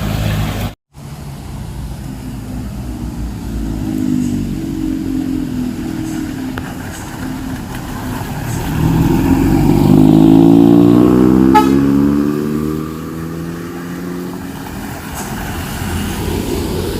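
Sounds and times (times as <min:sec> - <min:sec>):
vehicle engine passing by: 0:00.0 - 0:16.9
short horn toot: 0:11.4 - 0:12.0.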